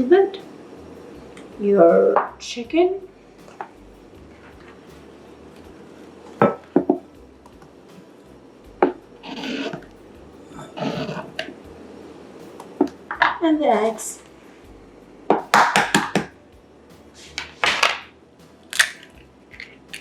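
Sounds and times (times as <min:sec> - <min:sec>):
scraping and rubbing in bowl: 0:09.2 - 0:11.8
utensil knocking against bowl: 0:15.4 - 0:16.3.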